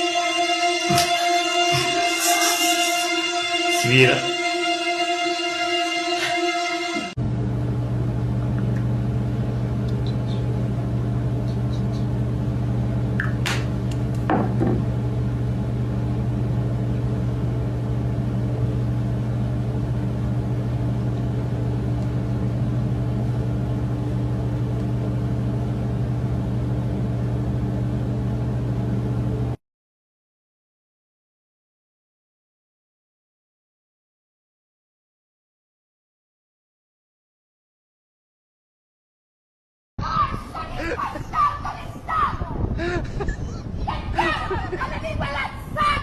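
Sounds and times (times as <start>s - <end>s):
low mechanical hum: 7.0s - 29.6s, 40.0s - 46.0s.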